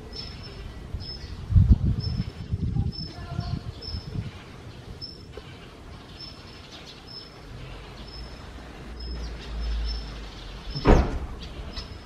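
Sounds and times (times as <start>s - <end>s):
loud thump: 10.8s - 11.4s.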